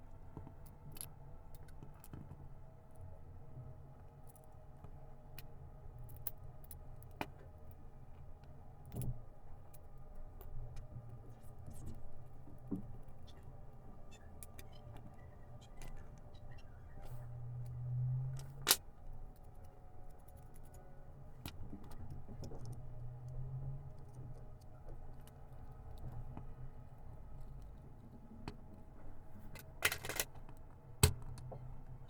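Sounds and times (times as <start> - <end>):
low steady hum: 0.0 - 32.0
tools and metal parts clicking: 29.5 - 31.4.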